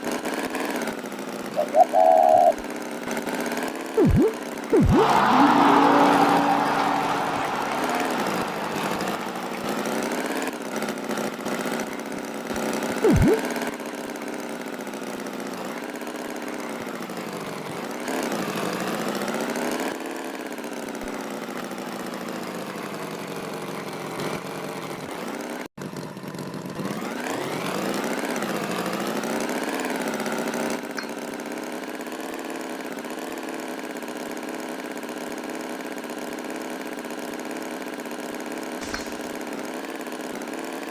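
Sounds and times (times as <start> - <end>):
tractor engine revving: 4.0 - 10.6, 12.6 - 13.6, 38.7 - 40.4.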